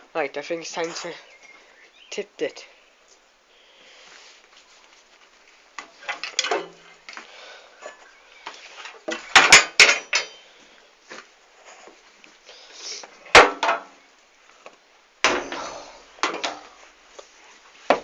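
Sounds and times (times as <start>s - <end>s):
hard objects clanking and knocking: 9.1s - 10.4s.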